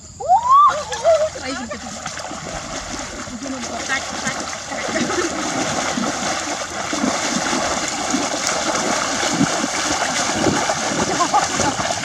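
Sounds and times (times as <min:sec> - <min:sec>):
water splashing and sloshing: 0:00.8 - 0:12.0.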